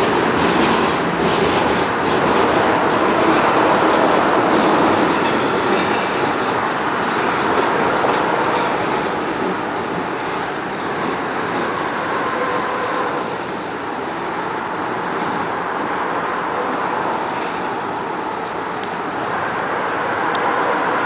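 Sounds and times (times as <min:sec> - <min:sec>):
high wheel squeal: 0:00.0 - 0:10.1, 0:10.8 - 0:13.4.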